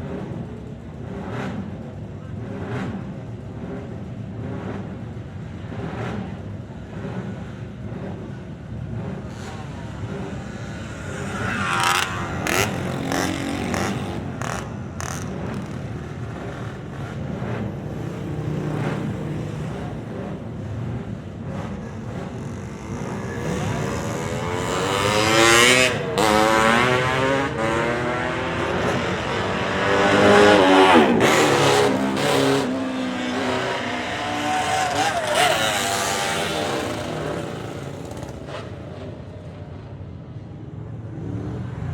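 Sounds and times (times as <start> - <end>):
motorcycles revving past: 9.2 - 39.5.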